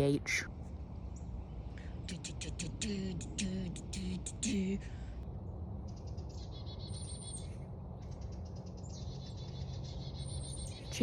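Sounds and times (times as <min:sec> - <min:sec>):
person speaking: 0:00.0 - 0:00.5, 0:02.0 - 0:05.1
songbird trilling: 0:05.9 - 0:11.0.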